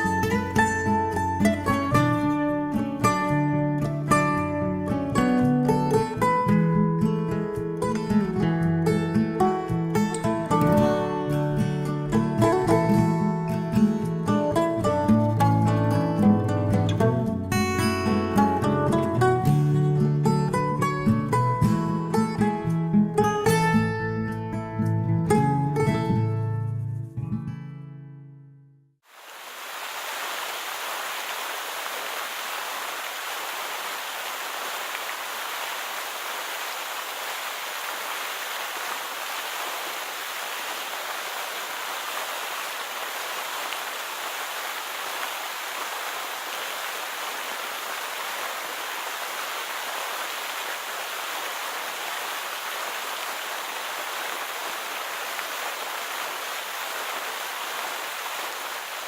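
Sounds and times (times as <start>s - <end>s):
waterfall rushing: 29.1s - 59.0s.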